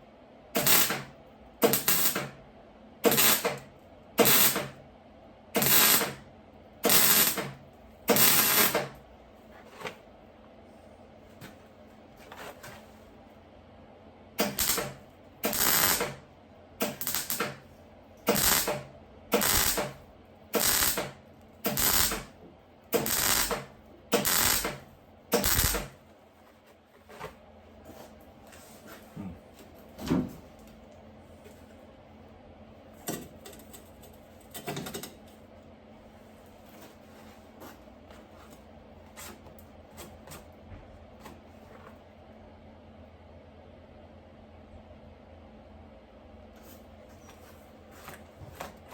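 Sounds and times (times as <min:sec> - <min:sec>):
welding crackling bursts: 0:00.6 - 0:02.3, 0:03.0 - 0:03.6, 0:04.2 - 0:04.7, 0:05.6 - 0:06.2, 0:06.8 - 0:09.0, 0:14.4 - 0:16.2, 0:16.8 - 0:17.6, 0:18.2 - 0:22.3, 0:22.9 - 0:26.0.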